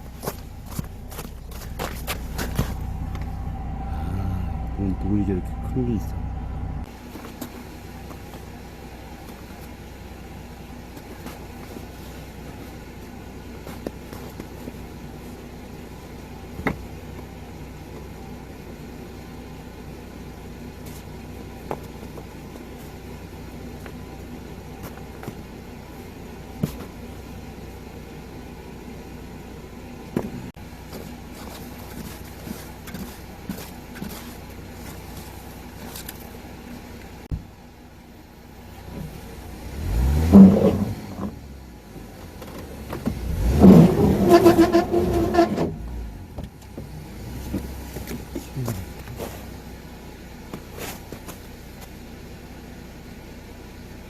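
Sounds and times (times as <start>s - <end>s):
truck engine revving: 0.0s - 6.9s, 39.0s - 41.6s, 42.6s - 46.2s
engine idling: 0.0s - 54.0s.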